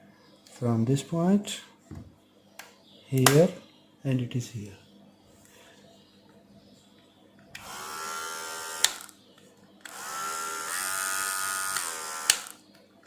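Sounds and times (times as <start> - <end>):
hair trimmer motor humming: 7.6 - 9.1, 9.8 - 12.6
trimmer switch click: 11.7 - 12.6.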